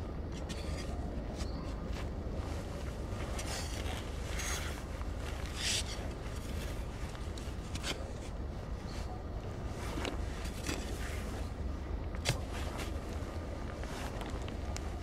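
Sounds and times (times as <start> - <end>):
steady low rumble: 0.0 - 15.0
scraping and rubbing: 0.3 - 8.4.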